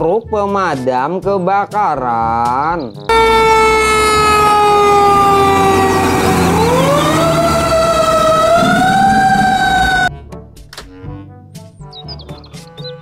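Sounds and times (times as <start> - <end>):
fire engine siren: 3.1 - 10.1
low engine rumble: 3.1 - 10.1.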